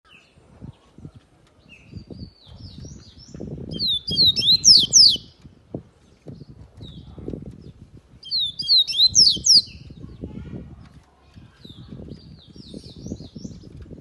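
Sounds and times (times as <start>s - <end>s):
bird singing whistles: 3.7s - 5.4s, 8.2s - 9.8s.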